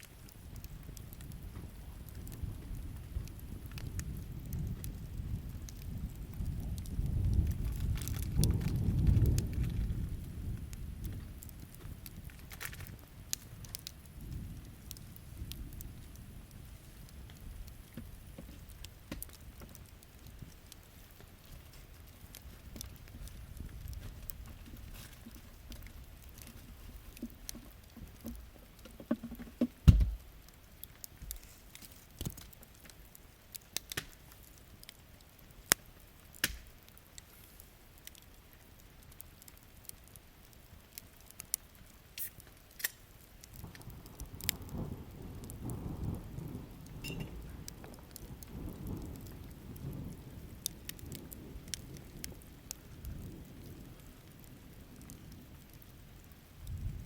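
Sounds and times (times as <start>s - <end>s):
campfire crackling and popping: 0.0s - 57.0s
faint rain: 0.0s - 57.0s
low rolling thunder: 1.1s - 12.3s, 43.6s - 55.6s, 56.6s - 57.0s
loud low thump: 29.8s - 30.2s.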